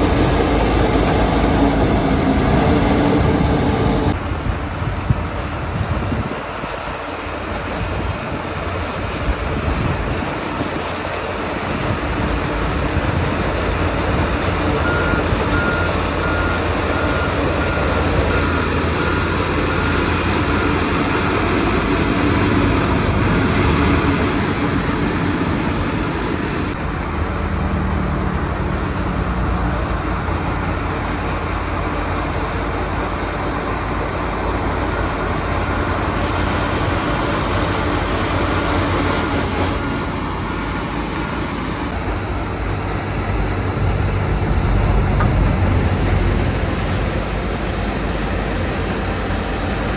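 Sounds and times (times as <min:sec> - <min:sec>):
heavy diesel machinery running: 0:00.0 - 0:49.9
reversing alarm beeping: 0:14.3 - 0:23.1.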